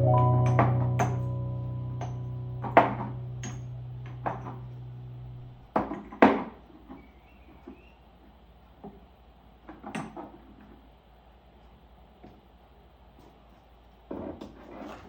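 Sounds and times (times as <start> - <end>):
slow piano music: 0.0 - 5.6.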